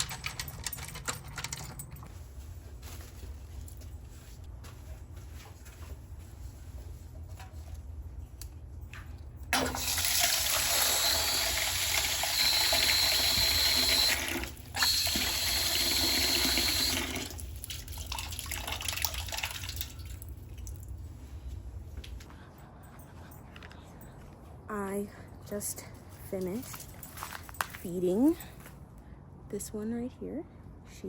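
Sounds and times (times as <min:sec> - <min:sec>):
water running from a tap: 0:09.6 - 0:20.1.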